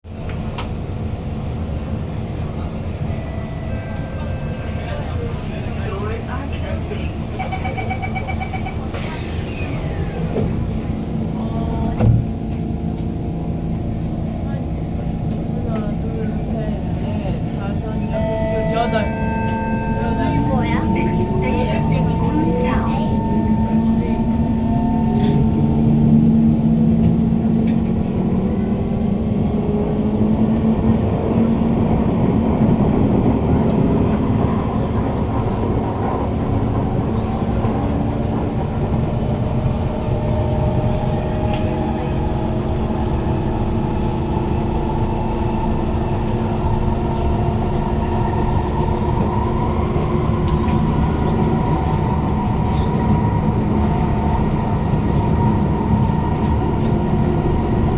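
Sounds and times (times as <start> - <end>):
wheels rumbling on rail: 0.0 - 57.9
train motor whine: 18.1 - 26.3.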